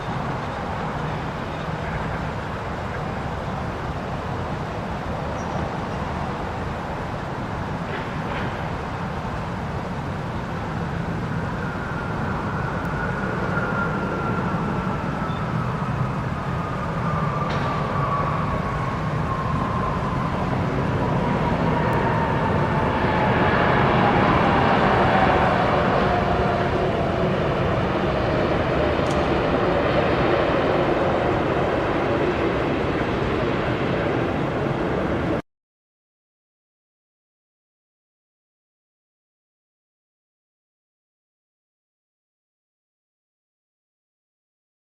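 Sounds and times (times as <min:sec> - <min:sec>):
jet aircraft engine: 0:00.0 - 0:35.4.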